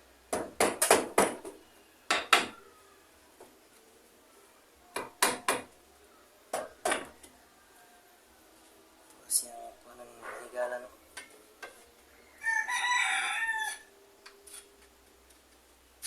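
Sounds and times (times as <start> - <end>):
hammer driving nails into wood: 0.3 - 1.5.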